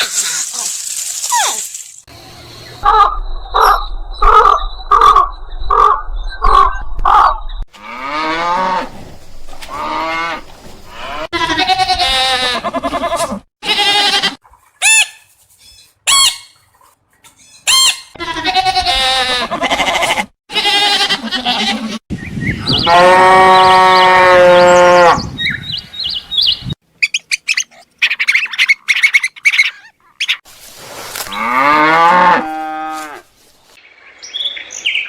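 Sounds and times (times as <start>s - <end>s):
long wavering bleating: 11.0s - 14.4s, 18.2s - 22.0s.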